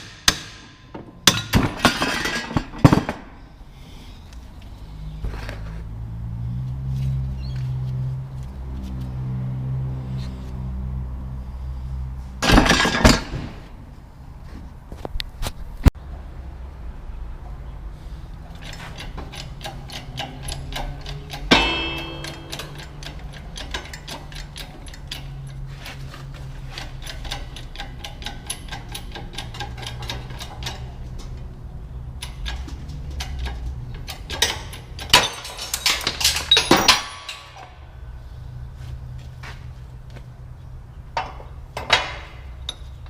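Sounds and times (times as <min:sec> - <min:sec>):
loud metal clanks: 0:00.0 - 0:03.4, 0:12.4 - 0:13.7, 0:18.6 - 0:25.5, 0:32.3 - 0:37.9
steady low hum: 0:21.0 - 0:27.8
ringing metal clank: 0:21.3 - 0:24.0, 0:34.4 - 0:37.8.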